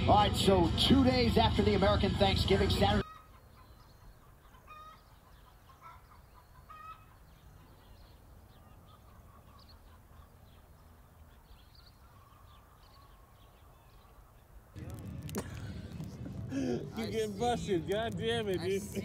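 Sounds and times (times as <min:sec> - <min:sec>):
bird calls: 0:03.0 - 0:14.7.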